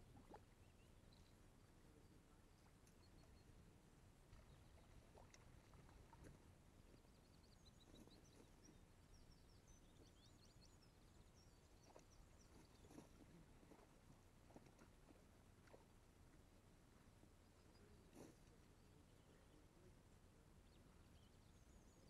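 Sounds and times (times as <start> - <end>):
faint outdoor ambience: 0.0 - 22.0.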